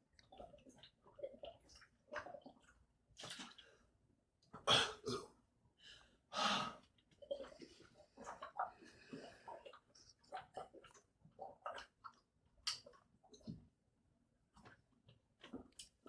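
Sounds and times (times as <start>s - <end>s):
person gulping a drink: 0.1s - 3.8s, 4.5s - 5.4s, 6.7s - 13.6s.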